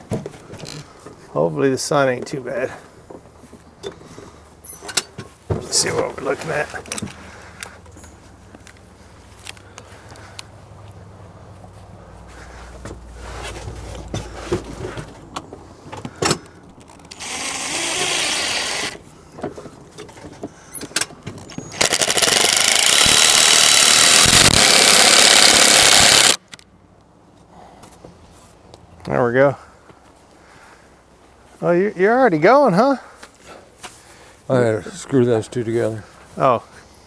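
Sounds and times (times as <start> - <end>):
power drill driving screws: 17.0 - 19.0, 21.4 - 26.4.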